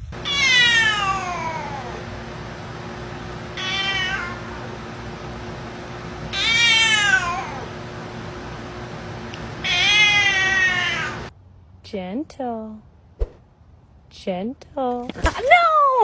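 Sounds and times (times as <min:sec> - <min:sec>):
cat meowing: 0:00.2 - 0:02.0, 0:03.6 - 0:04.6, 0:06.3 - 0:07.7, 0:09.6 - 0:11.3.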